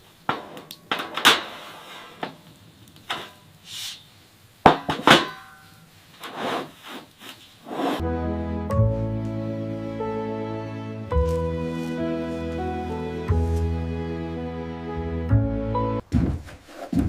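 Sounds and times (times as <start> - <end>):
background music: 8.0 - 16.0
irregular knocks and thuds: 16.0 - 17.0.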